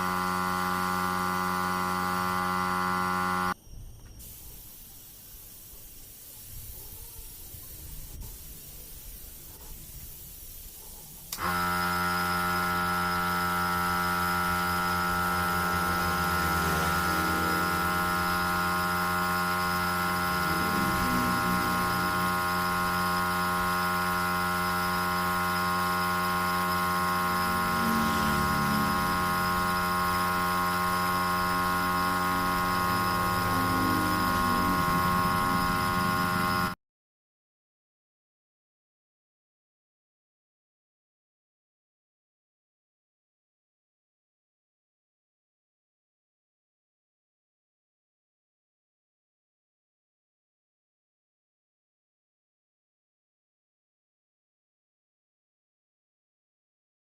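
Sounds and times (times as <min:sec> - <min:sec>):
machine hum: 0:00.0 - 0:04.4, 0:11.3 - 0:36.8
faint hiss: 0:03.6 - 0:11.4.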